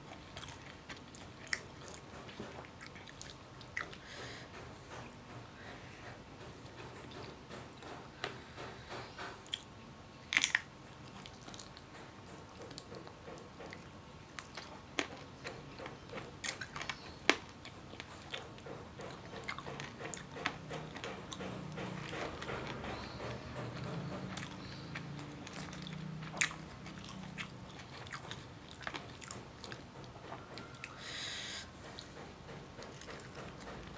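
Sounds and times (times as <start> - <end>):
person chewing food: 0.0 - 33.9
sharp clicks and smacks: 10.4 - 30.6, 31.8 - 33.9.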